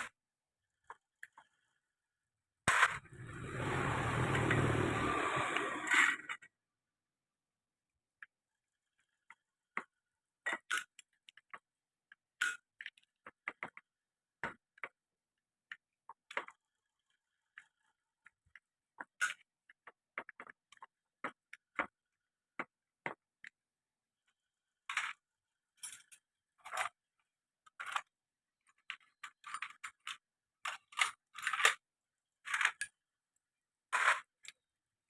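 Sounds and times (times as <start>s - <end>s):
tools and metal parts clattering: 24.8s - 33.0s, 33.9s - 34.6s.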